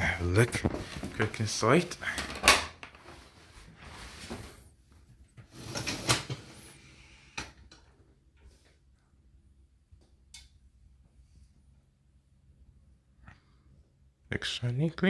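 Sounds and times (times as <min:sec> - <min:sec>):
dishwasher rack rattling and sliding: 0:05.6 - 0:06.6.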